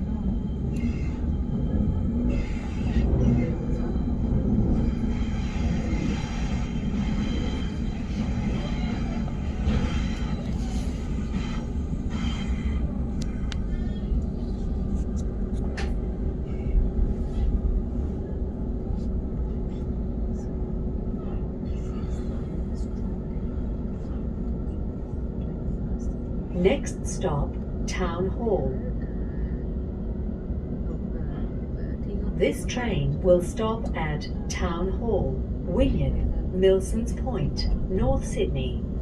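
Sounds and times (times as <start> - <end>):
train wheels rumbling: 0.0 - 18.3.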